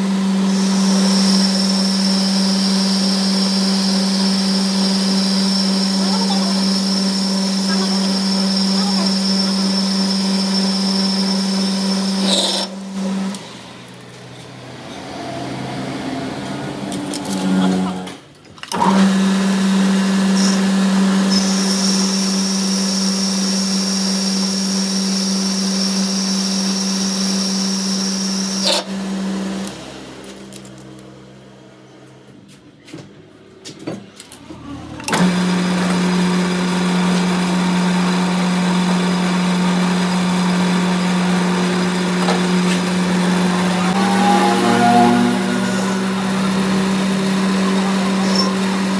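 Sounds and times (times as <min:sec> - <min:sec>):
electric motor humming: 0:00.0 - 0:13.5, 0:34.9 - 0:48.9
high whine: 0:41.9 - 0:48.9.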